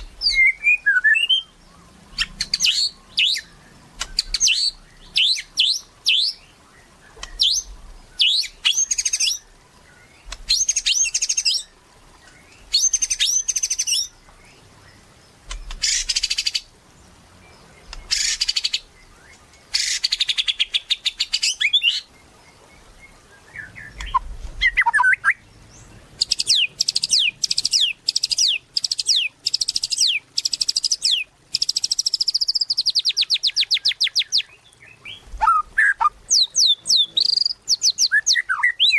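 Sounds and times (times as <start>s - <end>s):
songbird whistles and trills: 0.0s - 16.7s, 17.8s - 38.9s.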